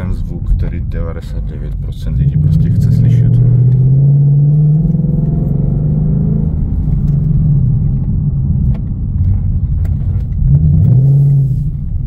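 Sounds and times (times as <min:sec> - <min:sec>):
car engine deep rumble: 0:00.0 - 0:12.0.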